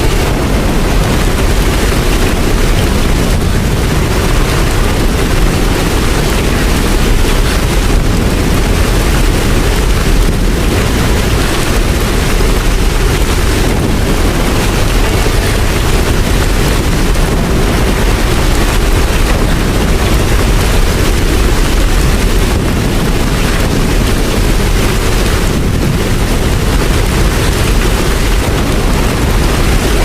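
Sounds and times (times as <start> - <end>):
deep rumble: 0.0 - 30.0
heavy rain hissing: 0.0 - 30.0.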